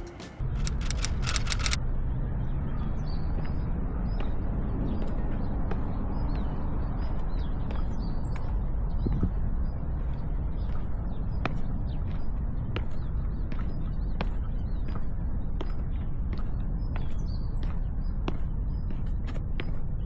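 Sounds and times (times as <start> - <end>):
rapid even ticking: 0.0 - 1.8.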